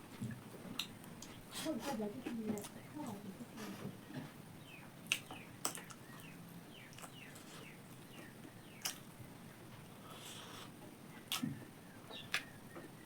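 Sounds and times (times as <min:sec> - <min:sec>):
wet mouth clicks: 0:08.8 - 0:09.0.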